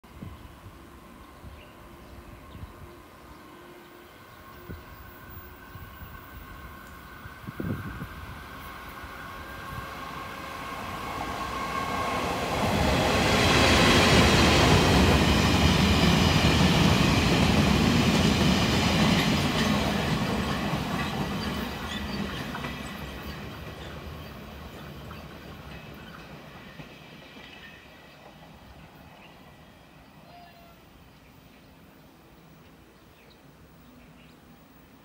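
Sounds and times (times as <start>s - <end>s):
train wagons rumbling on rails: 9.6s - 29.8s.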